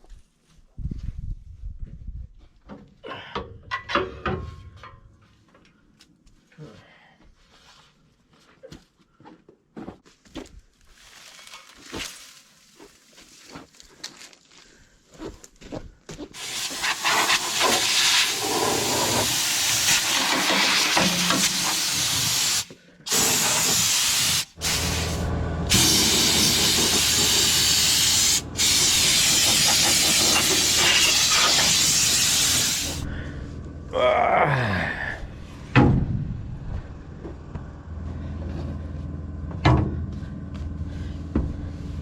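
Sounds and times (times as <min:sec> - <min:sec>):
compressed air blow gun hissing: 0:16.4 - 0:33.1.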